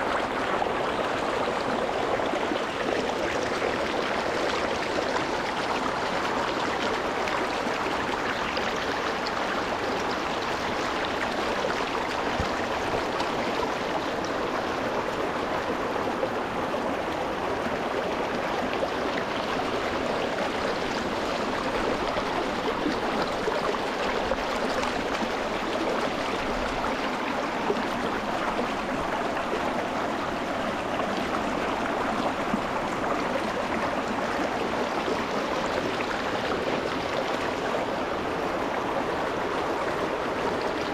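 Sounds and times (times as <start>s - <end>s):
stream splashing over stones: 18.2s - 38.7s.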